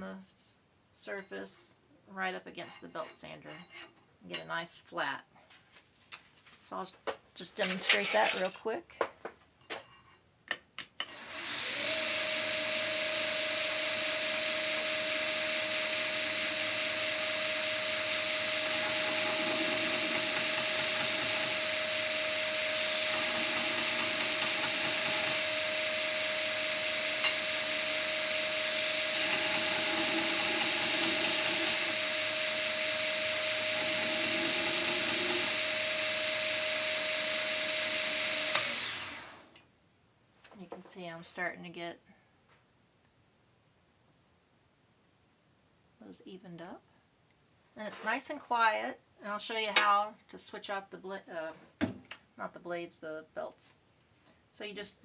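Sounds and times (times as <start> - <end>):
belt sander humming and whining: 11.2 - 39.5
metal grinding against belt: 18.0 - 22.0, 22.7 - 35.8.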